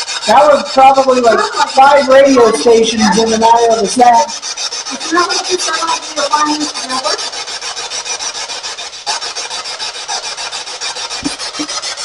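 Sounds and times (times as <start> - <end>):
radio scanner static sweeping: 0.3 - 4.4
radio voice fragments: 1.0 - 4.2.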